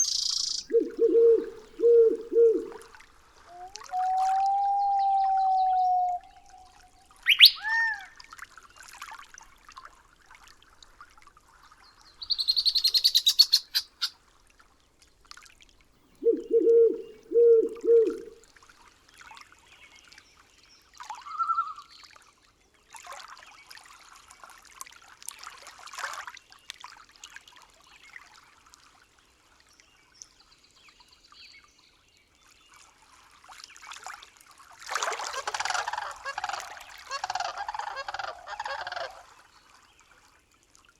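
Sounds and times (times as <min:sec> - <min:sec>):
fast high bird trill: 0:00.0 - 0:00.7, 0:07.3 - 0:07.8, 0:12.3 - 0:14.1
loud harsh calling: 0:00.0 - 0:00.7, 0:07.3 - 0:08.1, 0:35.2 - 0:39.3
short bird call: 0:04.9 - 0:08.2.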